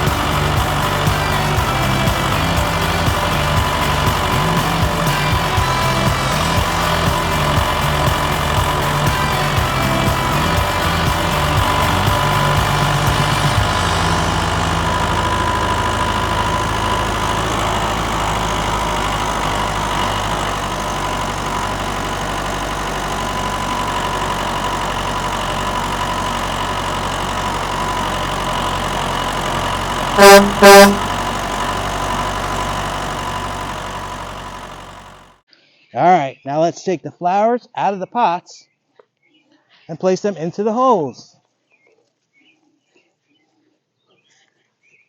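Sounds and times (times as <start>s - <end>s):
backhoe engine running: 0.0s - 35.5s
short loud horn toots: 30.2s - 31.1s.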